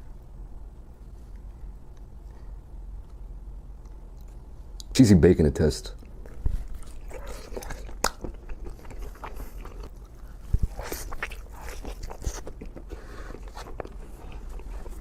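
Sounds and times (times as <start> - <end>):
biting and chewing: 6.0 - 15.0.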